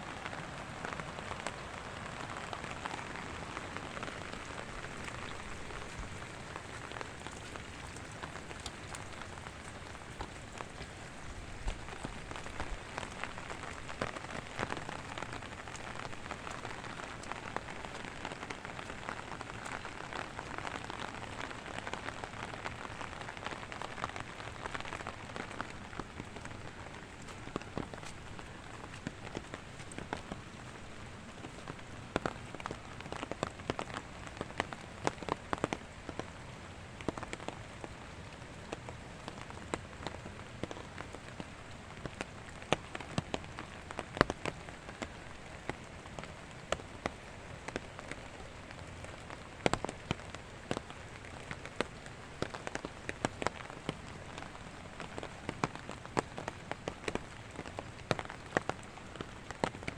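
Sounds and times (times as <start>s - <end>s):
raindrops ticking on surfaces: 0.0s - 59.9s
steady rain hiss: 0.0s - 59.9s.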